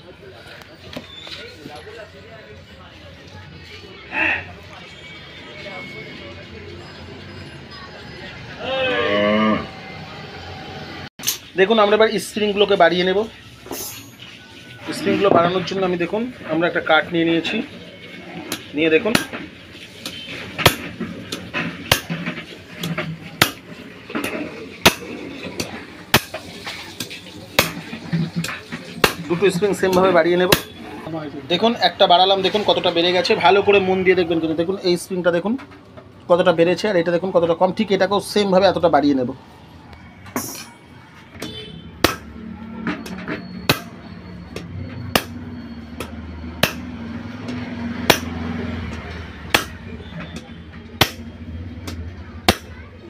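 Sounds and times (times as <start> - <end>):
sharp knocks of coil spring: 44.6 - 46.9, 48.1 - 48.4, 49.5 - 50.4
sharp knocks on coil spring: 46.0 - 46.9, 48.1 - 48.4, 49.5 - 49.8.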